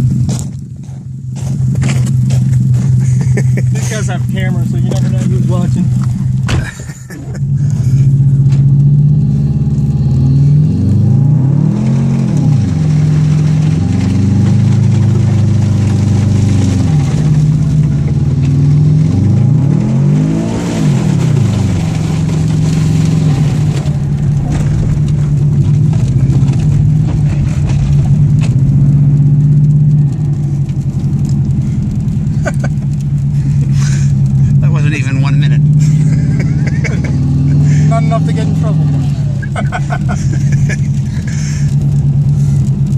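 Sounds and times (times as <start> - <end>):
car engine revving from inside cabin: 7.8 - 32.3, 32.9 - 41.0.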